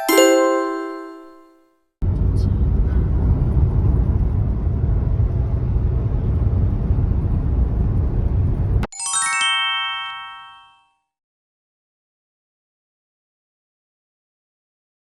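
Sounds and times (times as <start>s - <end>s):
sparkle chime sound effect: 0.0s - 1.6s, 8.8s - 10.9s
vehicle road noise rumble: 2.0s - 8.8s.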